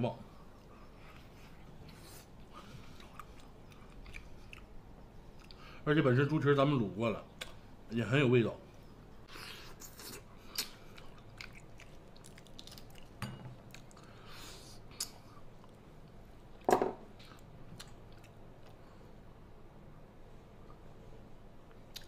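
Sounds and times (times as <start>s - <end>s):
wet smacking chewing: 9.9s - 14.1s.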